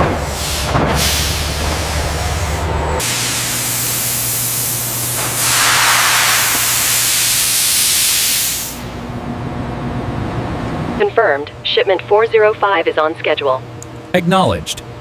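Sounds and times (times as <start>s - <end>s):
loud hissing air or steam: 3.0s - 8.9s
low machine hum: 8.7s - 15.0s.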